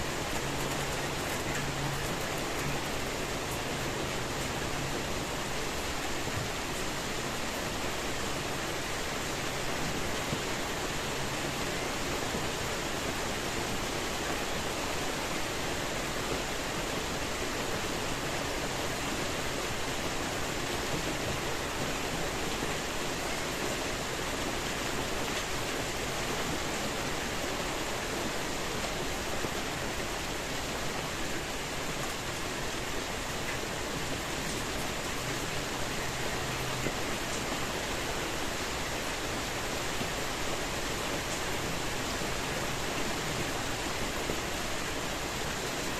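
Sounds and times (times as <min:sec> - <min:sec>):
steady rainfall: 0:00.0 - 0:45.9.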